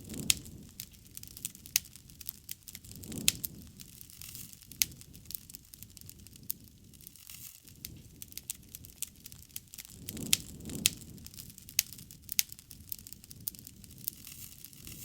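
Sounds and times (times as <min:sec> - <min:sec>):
bonfire crackling and popping: 0:00.0 - 0:15.0
low rumble of flames: 0:00.0 - 0:15.0.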